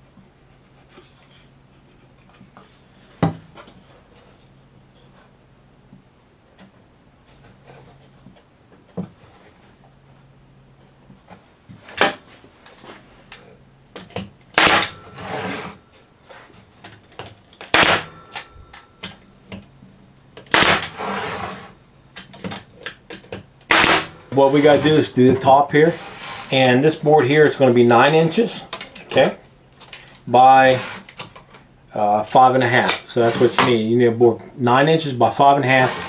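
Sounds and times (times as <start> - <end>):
wood scraping: 14.7 - 16.8, 20.6 - 21.8, 23.7 - 31.4, 32.0 - 34.4, 35.2 - 36.0.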